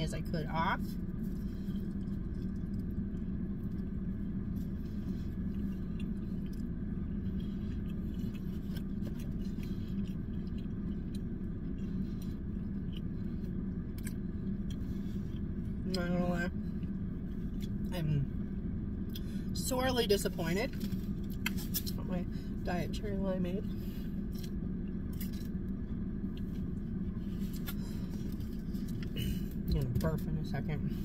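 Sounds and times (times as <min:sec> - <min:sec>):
car cabin hum: 0:00.0 - 0:31.0
person chewing: 0:00.9 - 0:15.9, 0:20.7 - 0:22.0, 0:23.7 - 0:29.8.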